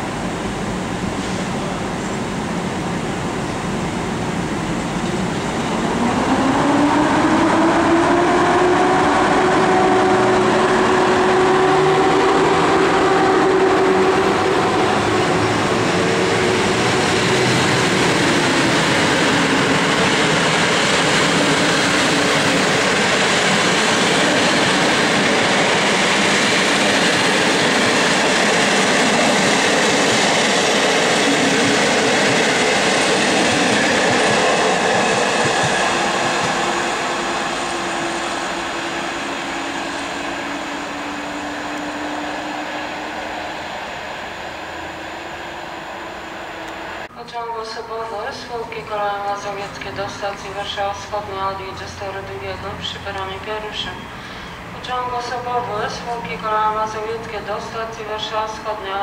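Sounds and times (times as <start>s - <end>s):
train coaches rumbling on rails: 0.0s - 47.1s
electric locomotive motor whine: 35.3s - 47.1s.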